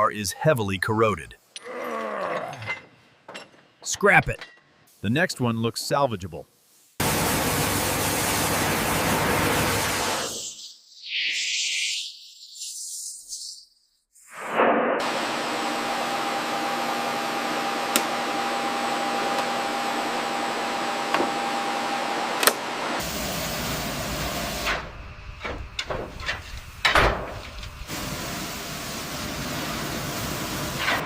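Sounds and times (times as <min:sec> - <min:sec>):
machine hissing: 0:07.0 - 0:12.8, 0:23.0 - 0:31.0.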